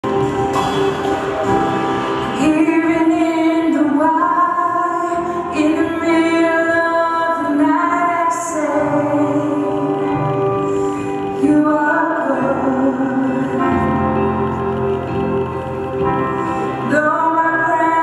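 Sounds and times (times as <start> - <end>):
background music: 0.0 - 18.0
woman singing slow melody: 2.2 - 14.8, 16.7 - 18.0.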